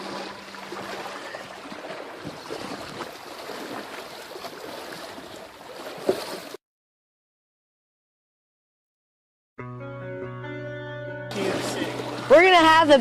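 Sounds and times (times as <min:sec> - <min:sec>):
floodwater splashing: 0:00.0 - 0:06.6, 0:11.3 - 0:13.0.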